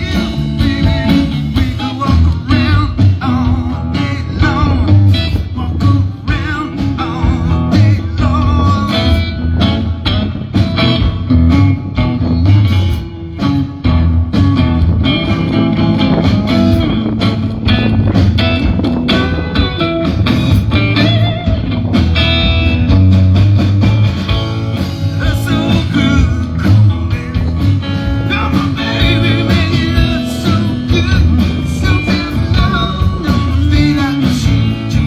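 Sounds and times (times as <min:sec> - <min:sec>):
bass guitar: 0:00.0 - 0:35.0
electric guitar with bends: 0:00.0 - 0:35.0
steady drum beat: 0:00.0 - 0:35.0.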